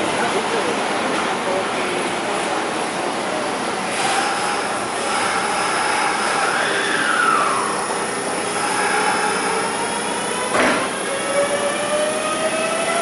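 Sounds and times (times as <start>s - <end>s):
electric train rumble: 0.0s - 13.0s
train motor whine: 3.8s - 13.0s.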